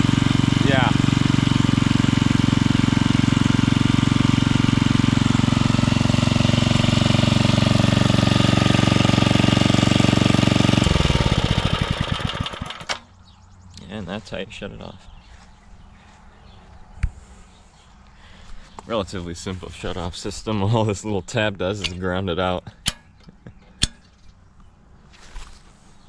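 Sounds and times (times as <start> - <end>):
small engine running: 0.0 - 13.1.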